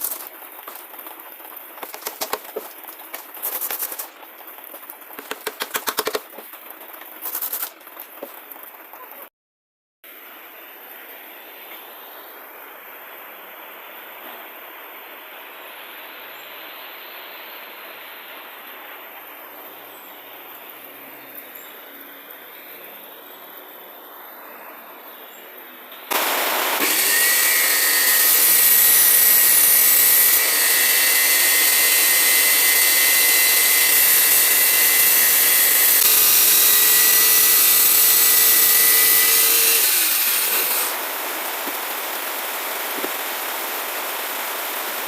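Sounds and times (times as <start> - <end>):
steady hiss: 0.0 - 8.4, 10.6 - 45.0
power tool high whine: 26.1 - 44.9.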